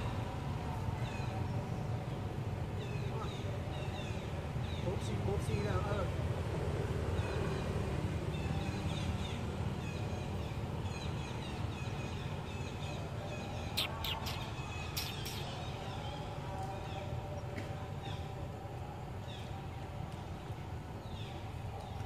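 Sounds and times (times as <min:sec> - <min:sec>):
birds chirping: 0:08.4 - 0:18.3.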